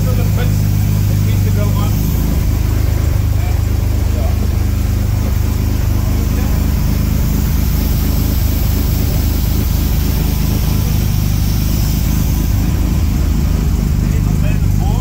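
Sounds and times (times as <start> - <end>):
car engine running steadily: 0.0 - 15.0.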